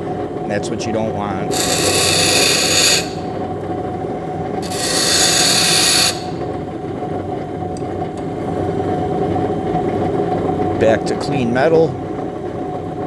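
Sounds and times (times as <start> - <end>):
grinder motor running: 1.5 - 3.4, 4.6 - 6.5
hiss of metal being ground: 1.5 - 3.4, 4.6 - 6.4.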